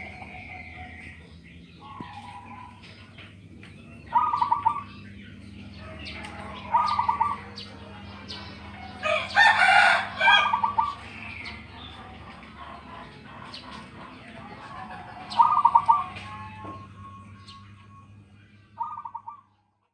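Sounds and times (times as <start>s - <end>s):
dove cooing: 0.0s - 17.7s, 18.8s - 19.6s
rooster crowing: 5.8s - 7.4s, 8.9s - 11.0s.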